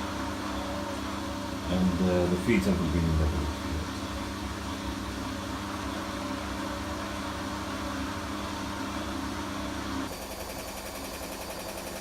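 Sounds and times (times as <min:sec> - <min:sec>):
washing machine spinning: 0:00.0 - 0:12.0.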